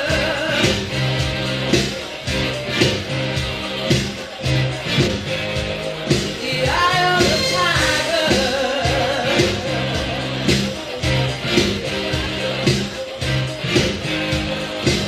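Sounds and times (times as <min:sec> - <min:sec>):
person singing: 0:00.0 - 0:02.2, 0:06.1 - 0:15.0
live band music: 0:00.0 - 0:15.0.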